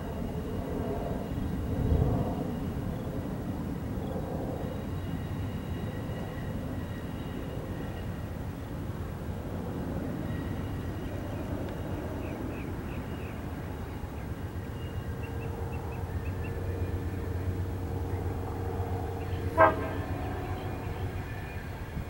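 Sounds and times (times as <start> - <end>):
train rumble: 0.0 - 22.0
faint steady horn-like note: 19.2 - 22.0.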